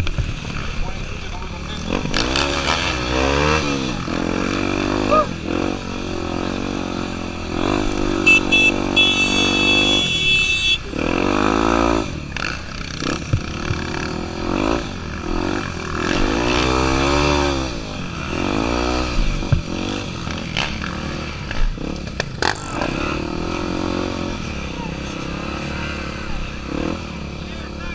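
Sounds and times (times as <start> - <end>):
motorcycle engine revving: 0.0 - 27.9
shrill steady tone: 8.3 - 10.9.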